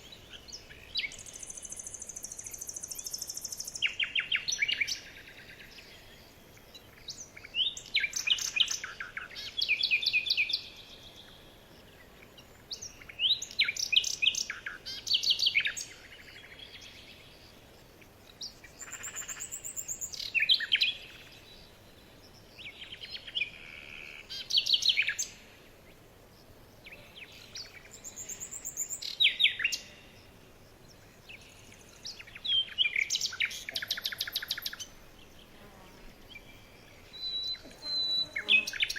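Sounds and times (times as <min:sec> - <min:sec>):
small birds chirping and trilling: 0:00.0 - 0:38.9.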